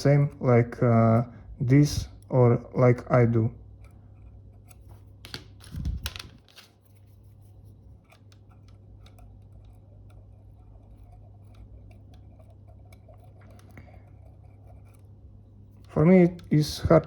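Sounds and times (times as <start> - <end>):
small tool scratching and ticking: 3.4 - 17.0.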